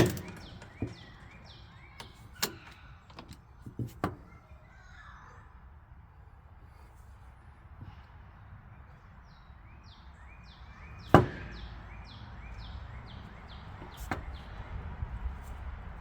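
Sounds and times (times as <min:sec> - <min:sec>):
sharp knocks: 0:11.1 - 0:11.6.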